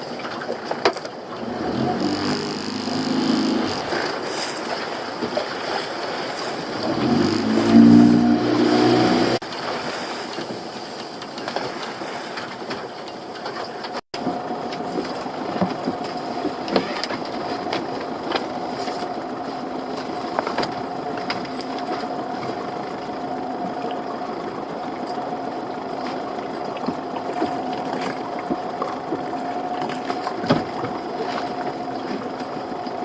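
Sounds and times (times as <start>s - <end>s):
boat motor running: 0.0s - 11.6s, 12.8s - 33.0s
low engine note: 1.4s - 4.3s, 6.7s - 9.4s.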